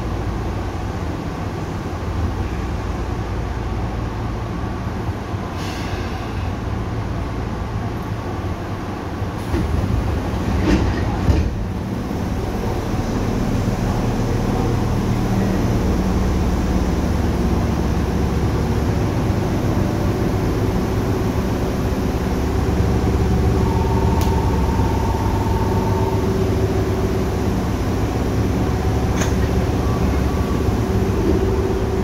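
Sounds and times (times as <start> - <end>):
train rumble: 0.0 - 32.0
steady higher tone: 19.9 - 32.0.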